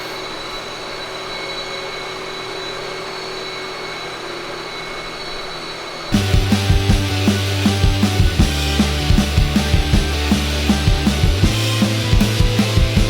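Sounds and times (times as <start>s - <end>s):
faint high whine: 0.0s - 13.0s
rushing shop background noise: 0.0s - 13.0s
loud rock music: 6.2s - 13.0s.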